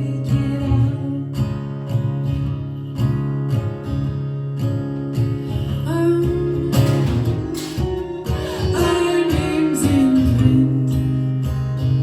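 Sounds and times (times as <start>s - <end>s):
acoustic guitar strumming: 0.0s - 12.0s
person singing: 5.9s - 11.1s.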